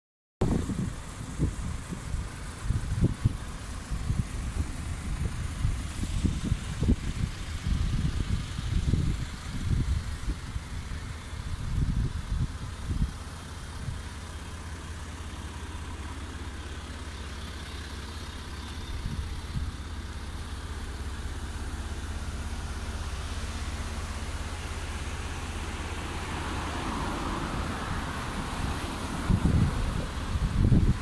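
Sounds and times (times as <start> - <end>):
low rumbles on microphone: 0.4 - 13.2, 27.5 - 31.0
car engines idling: 0.5 - 31.0.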